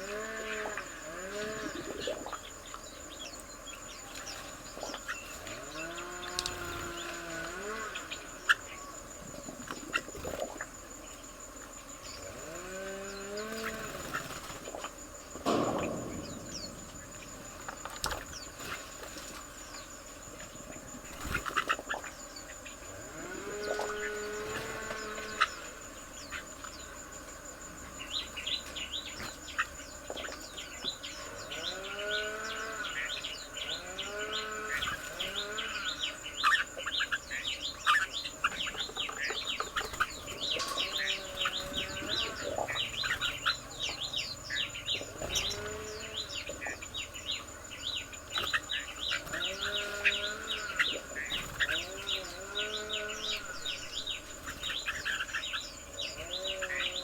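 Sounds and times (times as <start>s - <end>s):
birds chirping: 0.0s - 57.0s
high insect drone: 0.0s - 57.0s
low animal calls: 21.2s - 27.1s, 37.9s - 57.0s.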